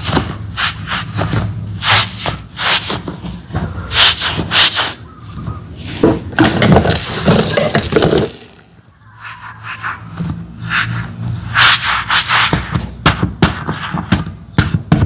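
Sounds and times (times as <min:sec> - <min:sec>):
small hard objects clattering: 0:06.4 - 0:08.8.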